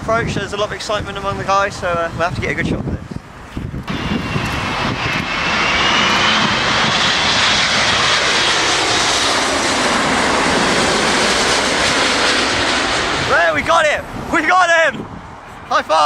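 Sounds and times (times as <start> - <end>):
faint high jet whine: 0.0 - 16.0
jet airliner roar: 0.0 - 16.0.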